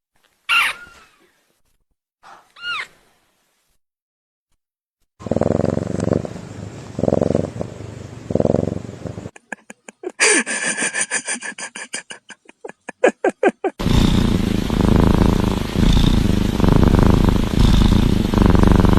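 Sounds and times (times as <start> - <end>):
cat purring: 5.2 - 9.4, 13.7 - 18.9.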